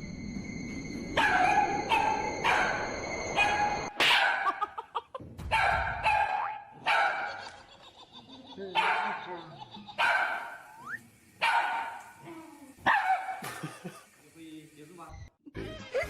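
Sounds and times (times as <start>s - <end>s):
dog barking: 1.2s - 2.8s, 3.4s - 4.7s, 5.5s - 7.5s, 8.7s - 9.4s, 10.0s - 10.7s, 11.4s - 12.2s, 12.8s - 13.6s.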